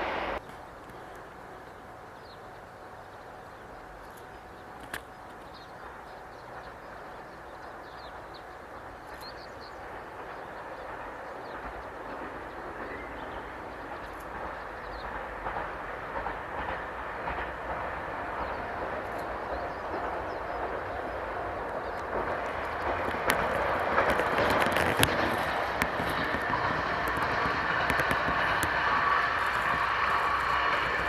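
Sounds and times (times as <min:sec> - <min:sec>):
diesel train rumble: 0:00.0 - 0:31.0.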